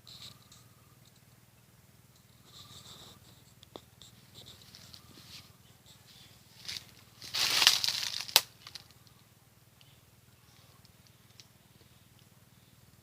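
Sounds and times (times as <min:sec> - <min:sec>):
cut grass rustling: 0:06.5 - 0:08.9.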